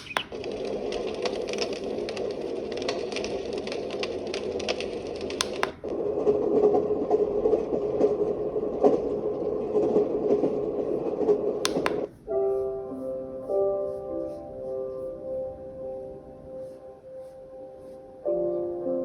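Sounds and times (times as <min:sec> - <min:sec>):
noisy hum with clicks: 0:00.0 - 0:12.2
dense crackling: 0:00.0 - 0:18.8.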